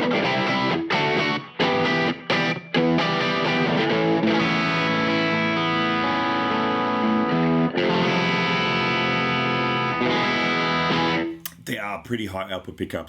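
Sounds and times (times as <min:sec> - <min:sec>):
overdriven electric guitar chords: 0:00.0 - 0:11.4.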